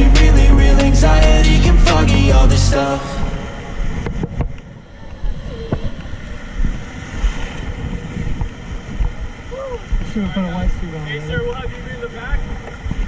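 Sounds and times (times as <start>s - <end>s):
ocean surf: 2.7s - 13.0s
wind buffeting microphone: 3.2s - 13.0s.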